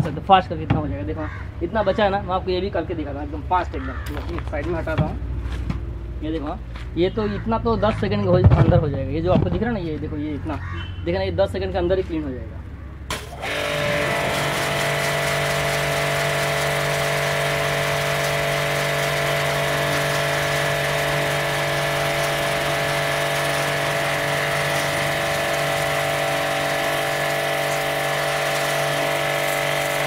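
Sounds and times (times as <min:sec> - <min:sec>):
high-pressure water jet hissing: 0:13.1 - 0:30.0
pressure washer motor hum: 0:13.1 - 0:30.0.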